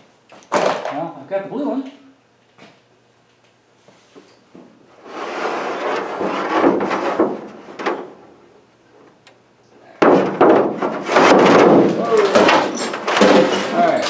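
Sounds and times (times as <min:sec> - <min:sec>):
objects clattering and scraping: 0:05.0 - 0:08.4, 0:10.0 - 0:14.0
clattering crash: 0:10.0 - 0:14.0.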